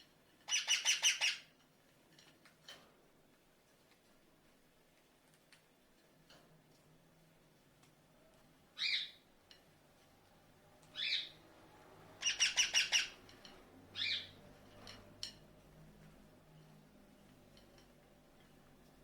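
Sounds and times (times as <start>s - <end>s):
parrot calling: 0.5s - 1.5s, 11.0s - 11.4s, 12.2s - 13.2s, 14.0s - 14.4s.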